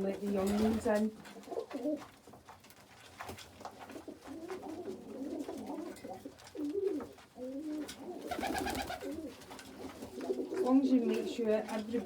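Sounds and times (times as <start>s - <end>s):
pigeons cooing: 4.0s - 10.7s.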